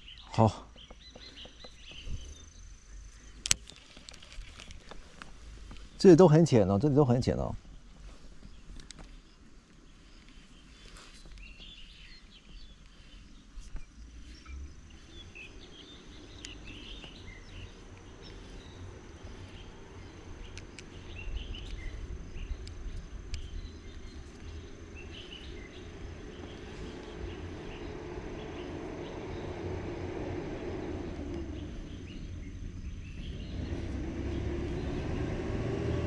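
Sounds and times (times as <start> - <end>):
birds chirping: 0.0 - 36.0
low outdoor rushing noise: 0.0 - 36.0
sharp clicks: 22.6 - 24.6.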